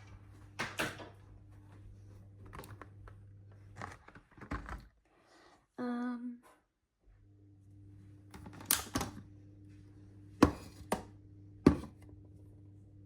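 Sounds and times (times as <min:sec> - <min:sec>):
low steady hum: 0:07.1 - 0:13.0.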